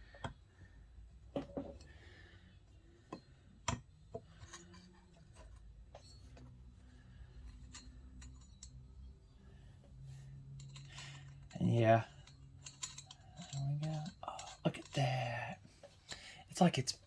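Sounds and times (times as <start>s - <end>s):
small metal parts clinking: 7.2s - 9.1s, 10.4s - 16.3s.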